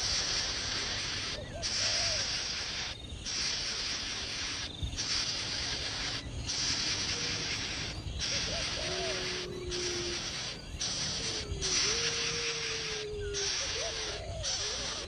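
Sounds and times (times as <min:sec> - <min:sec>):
baby bird hissing: 0:00.0 - 0:15.0
faint short bird calls: 0:00.0 - 0:15.0.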